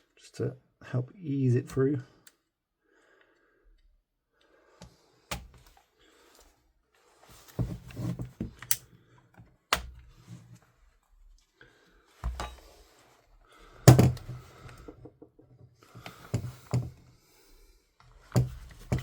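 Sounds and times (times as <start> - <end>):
rustling and scraping of parts: 5.5 - 17.2, 18.0 - 19.0.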